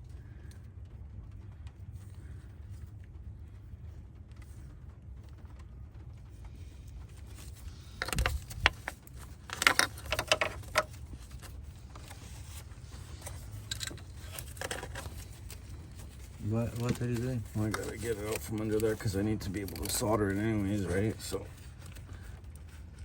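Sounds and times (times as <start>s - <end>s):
steady low rumble: 0.0s - 23.0s
connector clicks and rattles: 7.1s - 23.0s.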